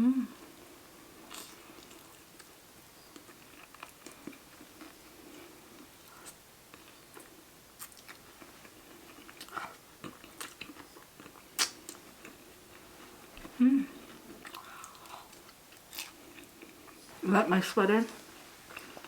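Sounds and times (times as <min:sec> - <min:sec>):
close chewing and biting: 0:03.2 - 0:12.8, 0:14.0 - 0:17.1
wet mouth clicks and smacks: 0:11.6 - 0:12.0.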